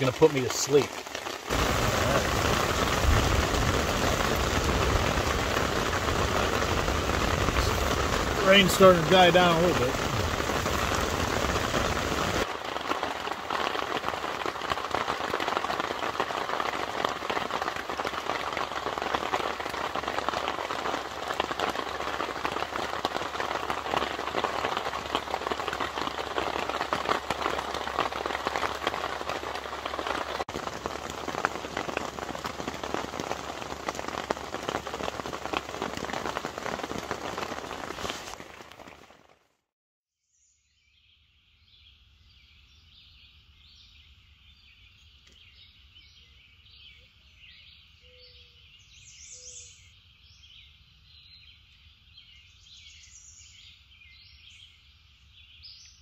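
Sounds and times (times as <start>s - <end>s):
rain pattering on a tent: 0.0s - 39.7s.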